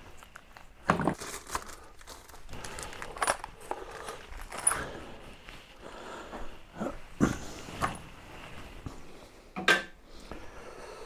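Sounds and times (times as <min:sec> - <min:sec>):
objects clicking and rattling: 0:00.3 - 0:05.0.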